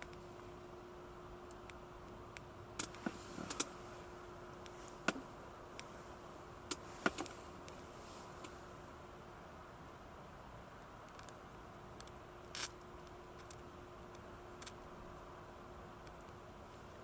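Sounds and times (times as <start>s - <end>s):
faint steady hum: 0.0s - 17.0s
sharp clicks and pops: 11.1s - 11.4s.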